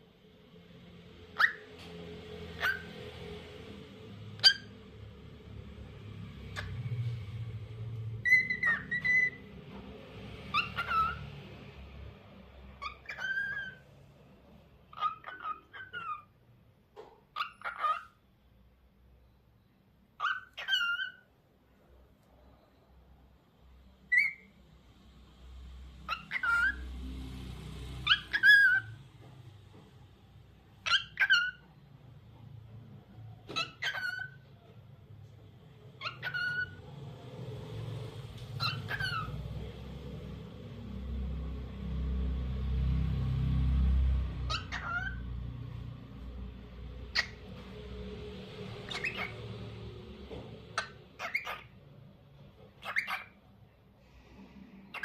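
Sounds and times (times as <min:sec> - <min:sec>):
cockatiel chirping: 0:01.4 - 0:01.7, 0:02.6 - 0:03.0, 0:04.4 - 0:04.8, 0:08.2 - 0:09.5, 0:10.5 - 0:11.2, 0:12.8 - 0:13.8, 0:14.9 - 0:16.3, 0:17.3 - 0:18.2, 0:20.2 - 0:21.3, 0:24.1 - 0:24.5, 0:26.1 - 0:26.8, 0:28.0 - 0:29.0, 0:30.8 - 0:31.7, 0:33.5 - 0:34.5, 0:36.0 - 0:36.8, 0:38.5 - 0:39.4, 0:44.5 - 0:45.2, 0:47.1 - 0:47.4, 0:48.9 - 0:49.5, 0:50.7 - 0:51.8, 0:52.8 - 0:53.4
cockatiel whistling: 0:01.4 - 0:01.7, 0:02.6 - 0:02.9, 0:08.2 - 0:09.4, 0:10.5 - 0:11.2, 0:12.8 - 0:13.8, 0:20.2 - 0:21.2, 0:24.1 - 0:24.5, 0:26.1 - 0:26.8, 0:28.0 - 0:29.0, 0:30.8 - 0:31.6, 0:33.5 - 0:34.4, 0:36.0 - 0:36.8, 0:38.6 - 0:39.3, 0:44.5 - 0:45.2, 0:48.9 - 0:49.4, 0:50.8 - 0:51.7, 0:52.8 - 0:53.4.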